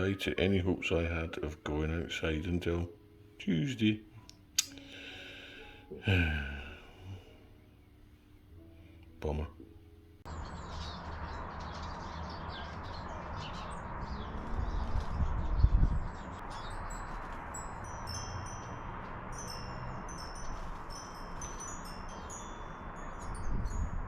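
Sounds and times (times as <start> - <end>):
small birds singing: 10.2 - 24.0
wind rumble on microphone: 11.4 - 19.3, 20.0 - 24.0.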